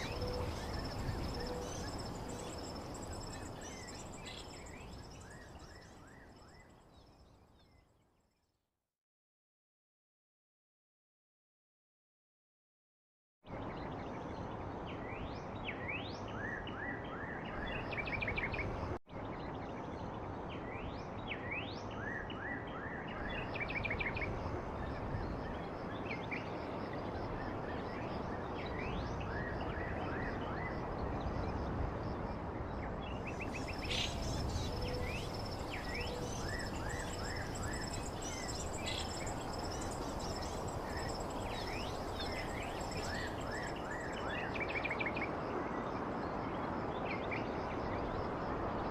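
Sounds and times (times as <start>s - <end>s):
birds chirping: 33.2s - 44.2s
background hiss: 33.4s - 44.2s.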